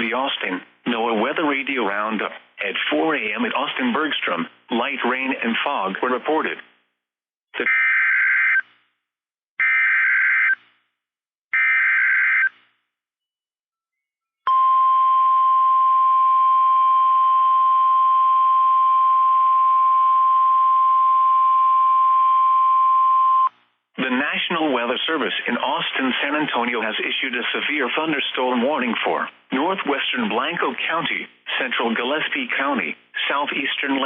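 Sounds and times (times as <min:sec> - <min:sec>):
steady warning alarm tone: 0:07.6 - 0:08.6, 0:09.6 - 0:10.6, 0:11.6 - 0:12.5.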